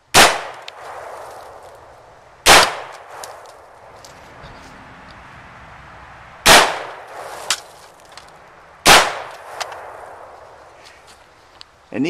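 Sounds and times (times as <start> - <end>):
gunshots: 0.1 - 1.6, 2.4 - 3.4, 6.4 - 7.7, 8.8 - 10.6.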